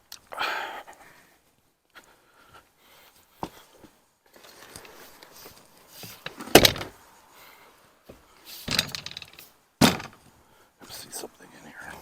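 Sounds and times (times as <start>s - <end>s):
hands rustling soil: 1.9s - 8.7s
loud dull thump: 6.6s - 6.9s, 9.8s - 10.2s.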